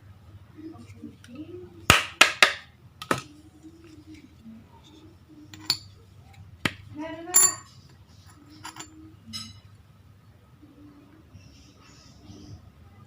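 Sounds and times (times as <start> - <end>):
faint low voices: 0.0 - 1.9, 2.7 - 13.0
light metallic clinks: 7.3 - 9.6.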